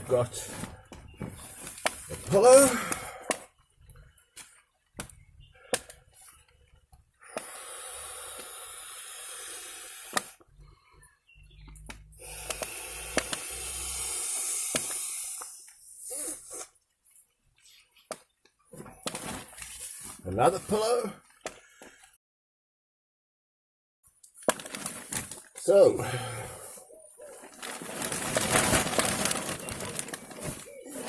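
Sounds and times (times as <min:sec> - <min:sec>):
plastic bag rustling: 0:24.4 - 0:25.7, 0:27.0 - 0:31.0.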